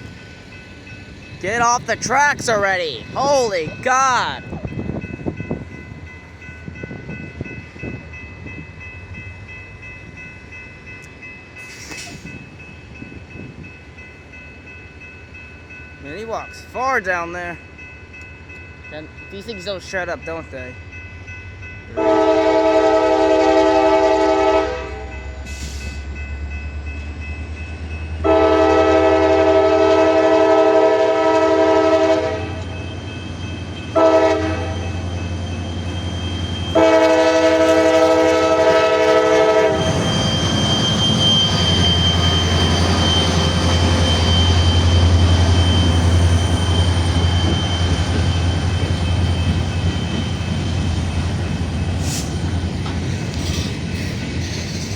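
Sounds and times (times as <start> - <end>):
train rolling: 0.0 - 54.9
locomotive air horn blasts: 22.0 - 25.1, 28.2 - 32.6, 34.0 - 34.8, 36.8 - 40.0
locomotive engine rumble: 28.8 - 54.5.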